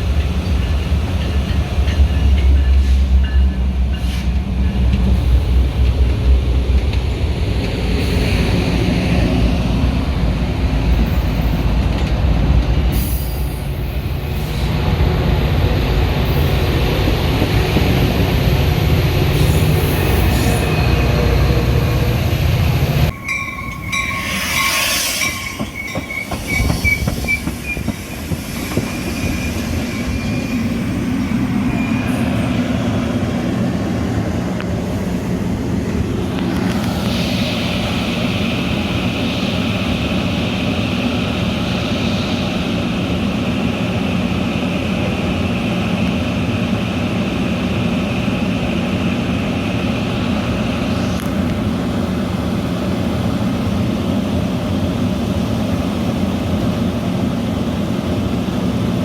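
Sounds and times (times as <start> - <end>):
train rumbling on rails: 0.0 - 59.0
high wavering wheel squeal: 23.1 - 32.5.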